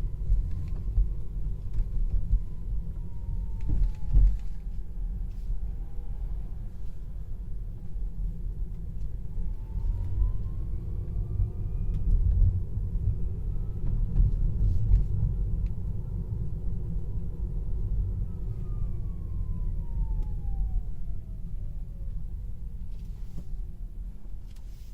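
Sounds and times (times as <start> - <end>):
low road rumble: 0.0 - 24.9.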